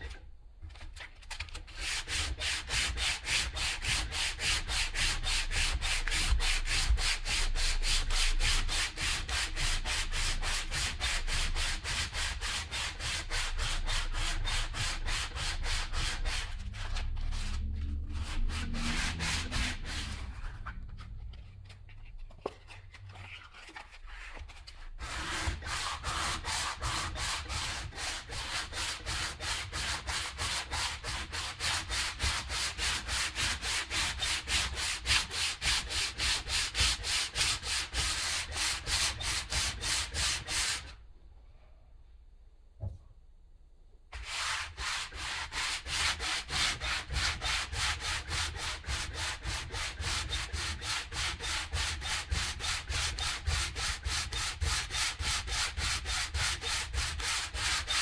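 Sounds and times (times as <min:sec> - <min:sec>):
sandpaper rubbing back and forth: 0:01.7 - 0:20.7, 0:22.7 - 0:40.9, 0:44.2 - 0:58.0.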